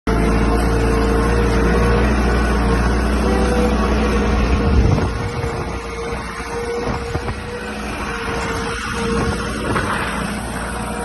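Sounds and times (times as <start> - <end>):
tractor engine running: 0.1 - 11.0.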